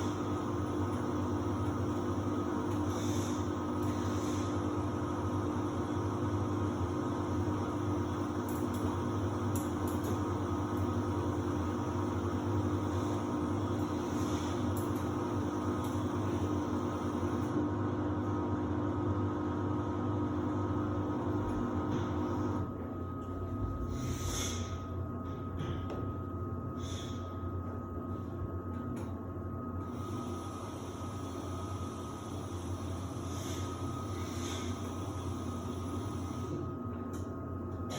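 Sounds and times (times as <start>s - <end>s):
thin constant whine: 0.0s - 17.6s
washer-dryer humming: 0.0s - 37.9s.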